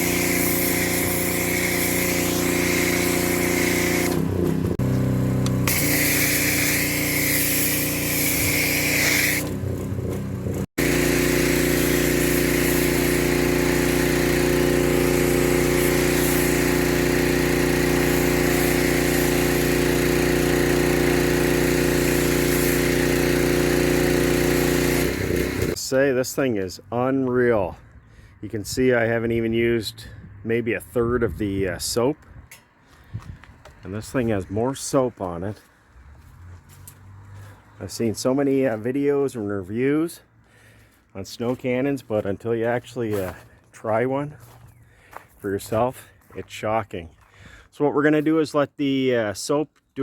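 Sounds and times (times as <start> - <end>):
foam spray hissing: 0.0 - 4.2, 5.7 - 9.5, 10.8 - 25.2
pressure washer engine running: 0.0 - 25.8.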